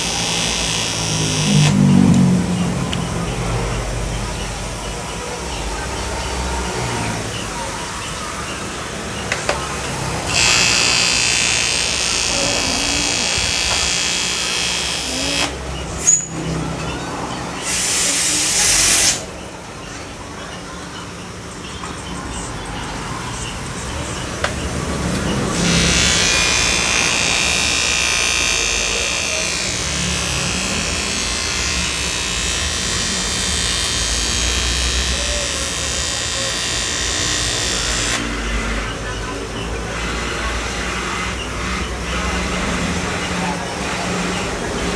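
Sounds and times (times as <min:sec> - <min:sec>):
power tool whining: 0:00.0 - 0:04.3, 0:08.1 - 0:19.3, 0:25.0 - 0:44.9.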